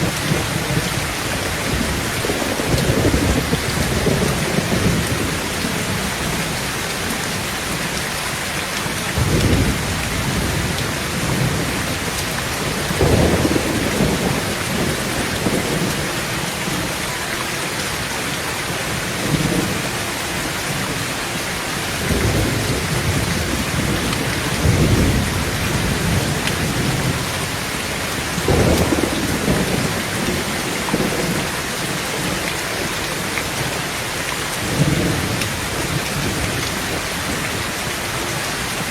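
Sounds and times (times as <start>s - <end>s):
low rolls of thunder: 0.0s - 6.5s, 8.9s - 16.8s, 22.0s - 32.4s
heavy rain on a tin roof: 0.0s - 38.9s.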